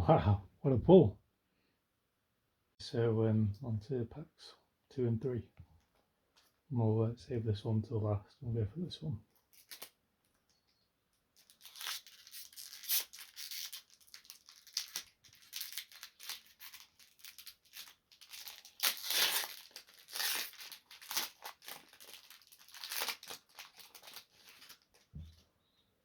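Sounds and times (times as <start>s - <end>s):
foil wrapper tearing and crinkling: 9.4s - 10.0s, 11.3s - 25.1s.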